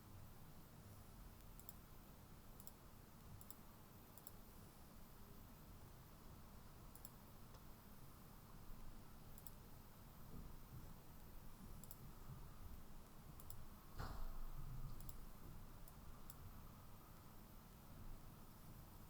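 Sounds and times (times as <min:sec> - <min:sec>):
low room hum: 0:00.0 - 0:19.0
computer mouse clicks: 0:01.4 - 0:01.8, 0:02.6 - 0:02.8, 0:03.4 - 0:03.6, 0:04.2 - 0:04.4, 0:06.9 - 0:07.7, 0:09.3 - 0:09.6, 0:11.8 - 0:12.0, 0:13.4 - 0:14.2, 0:14.9 - 0:15.2, 0:15.8 - 0:16.4.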